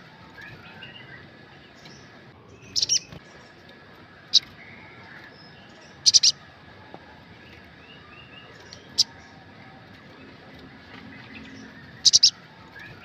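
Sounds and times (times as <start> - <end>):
faint bird twitters: 12.0 - 13.0.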